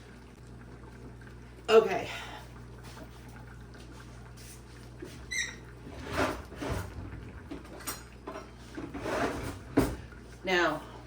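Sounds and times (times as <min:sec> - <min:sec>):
low steady hum: 0:00.0 - 0:11.0
kitchen clatters and rustles: 0:04.4 - 0:10.1
short high squeak: 0:05.3 - 0:05.6.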